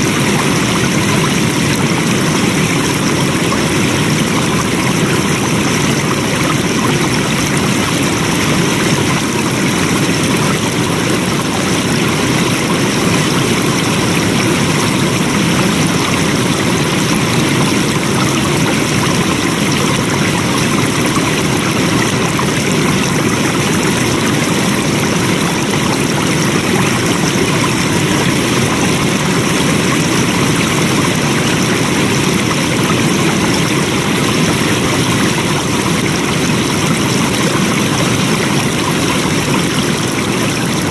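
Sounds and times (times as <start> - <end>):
flowing water: 0.0 - 40.9.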